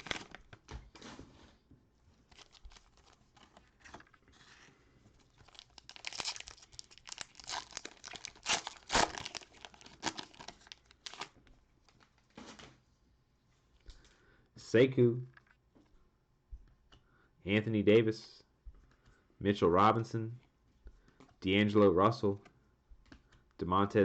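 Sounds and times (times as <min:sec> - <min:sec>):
cellophane wrapper crinkling: 0:00.0 - 0:01.1, 0:02.1 - 0:12.7.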